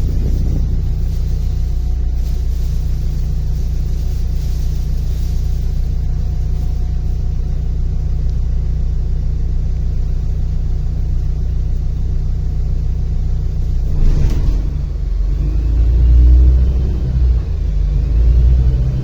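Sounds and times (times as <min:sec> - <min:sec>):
bus engine and road rumble: 0:00.0 - 0:19.0
low hum: 0:00.0 - 0:19.0.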